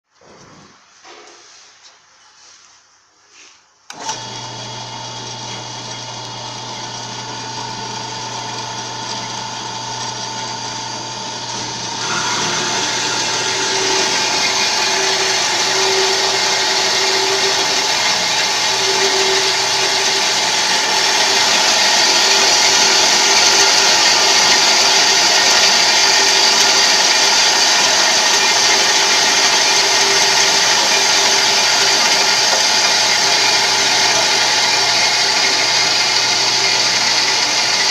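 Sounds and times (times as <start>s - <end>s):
band saw humming: 3.9s - 37.9s
saw blade cutting metal: 11.6s - 37.9s.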